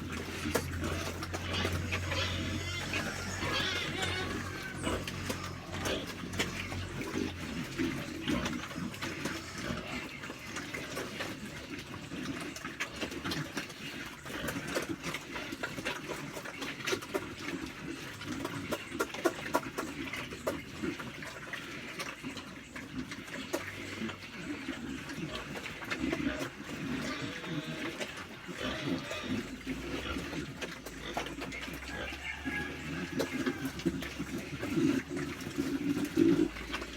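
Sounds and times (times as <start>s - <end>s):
pigs eating wet feed: 0.0s - 36.9s.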